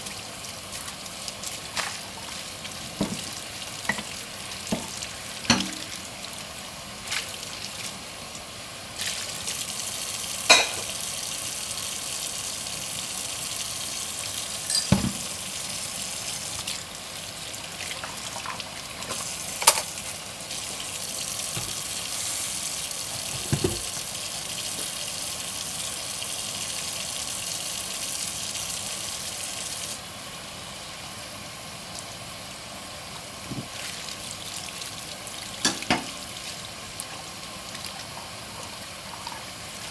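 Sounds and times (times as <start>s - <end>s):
tap water running into sink: 0.0s - 30.0s, 33.4s - 39.9s
dishes clinking: 5.5s - 6.0s, 10.5s - 10.9s, 14.7s - 15.3s, 19.6s - 20.0s, 23.3s - 23.9s, 35.6s - 36.2s.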